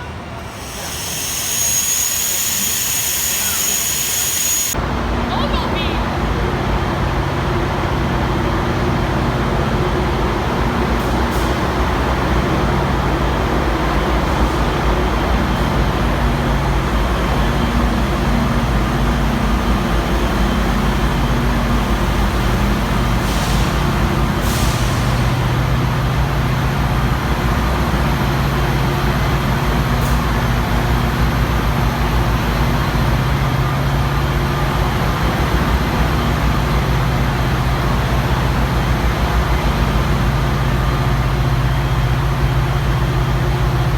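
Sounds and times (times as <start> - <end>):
train running: 0.0 - 43.9
brief hisses: 0.4 - 4.8.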